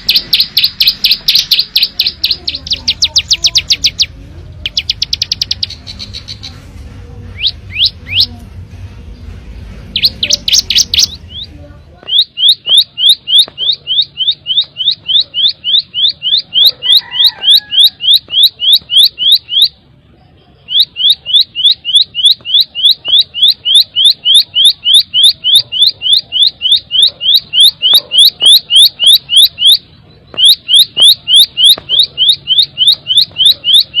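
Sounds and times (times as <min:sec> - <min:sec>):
bird singing rising chirps: 0:00.0 - 0:06.6, 0:09.8 - 0:19.8
low hum: 0:00.0 - 0:15.1.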